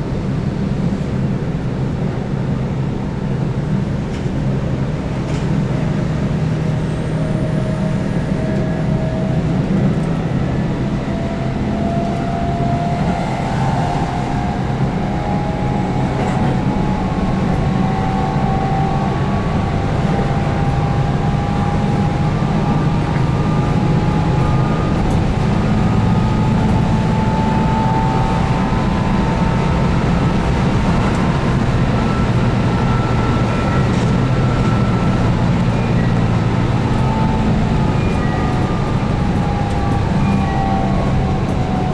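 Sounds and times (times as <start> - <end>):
train running gear rumble: 0.0 - 41.9.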